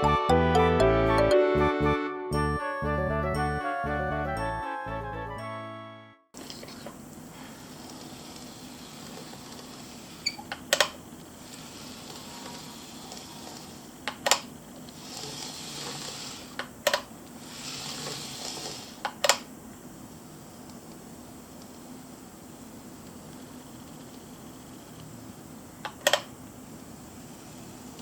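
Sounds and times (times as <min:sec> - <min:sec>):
steady hiss: 0:14.7 - 0:19.1.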